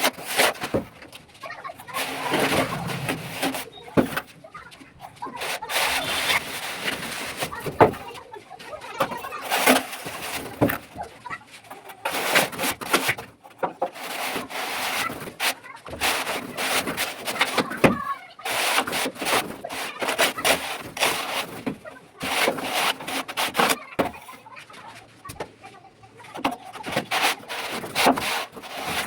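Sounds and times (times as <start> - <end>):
plastering tool scraping plaster: 11.9 - 24.3, 26.3 - 29.0.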